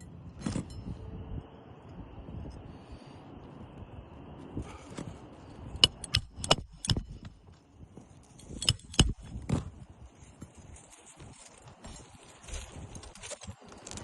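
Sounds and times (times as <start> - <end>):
hammer driving nails: 5.8 - 7.2, 8.6 - 9.2.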